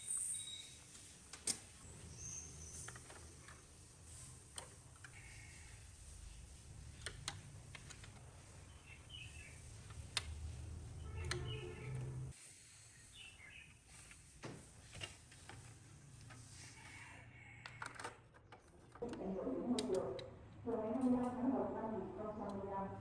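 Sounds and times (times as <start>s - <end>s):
birds chirping: 1.8s - 3.6s, 8.4s - 9.9s, 10.9s - 12.3s, 12.9s - 13.8s.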